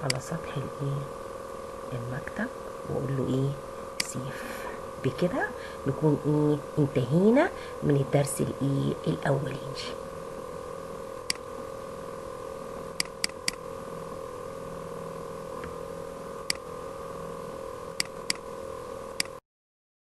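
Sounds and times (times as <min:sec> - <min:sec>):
electrical hum: 0:00.0 - 0:19.4
computer mouse clicks: 0:13.0 - 0:13.6, 0:18.0 - 0:18.4, 0:19.2 - 0:19.4.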